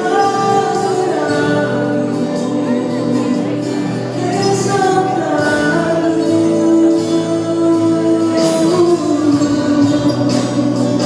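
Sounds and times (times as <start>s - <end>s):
live band playing: 0.0s - 11.0s.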